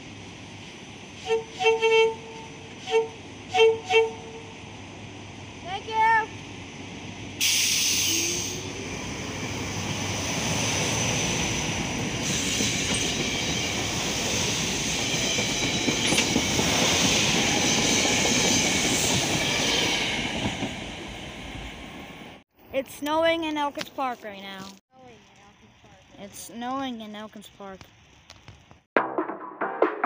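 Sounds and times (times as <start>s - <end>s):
train wheels rumbling on rails: 0.0s - 22.4s
train horn: 1.2s - 4.5s
clickety-clack of rail joints: 11.8s - 21.0s.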